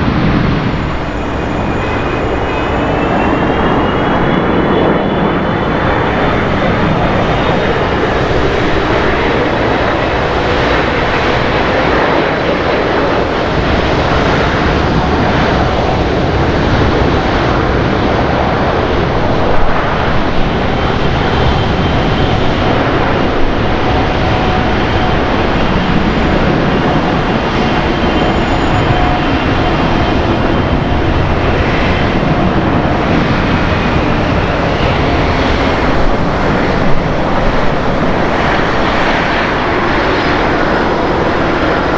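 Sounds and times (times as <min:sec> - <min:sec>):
jet engines rumbling: 0:00.0 - 0:41.9
faint high whine: 0:00.4 - 0:14.6.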